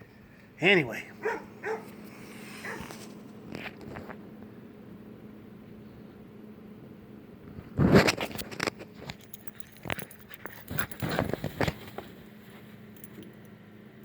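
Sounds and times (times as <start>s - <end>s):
dog collar tags jangling: 9.0s - 12.0s, 12.9s - 13.6s.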